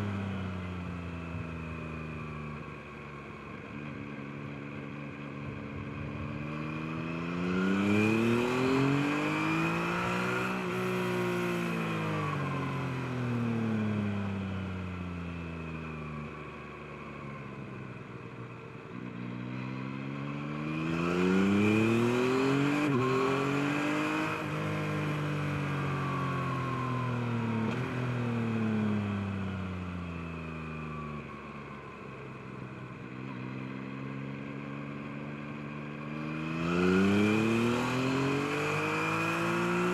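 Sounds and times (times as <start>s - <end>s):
motorcycle engine revving: 5.5s - 12.0s, 36.0s - 39.9s.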